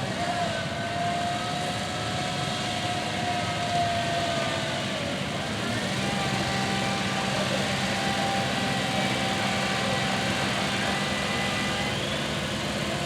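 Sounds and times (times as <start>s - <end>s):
small engine running: 5.0s - 13.0s.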